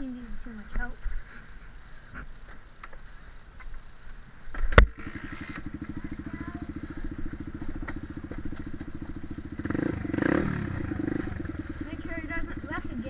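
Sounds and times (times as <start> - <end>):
dirt bike engine idling: 0.0 - 13.0
kick-start thump: 4.5 - 13.0.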